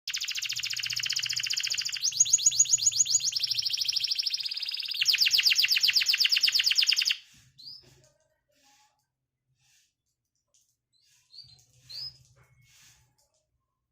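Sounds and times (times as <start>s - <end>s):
canary singing trills: 0.1s - 7.8s.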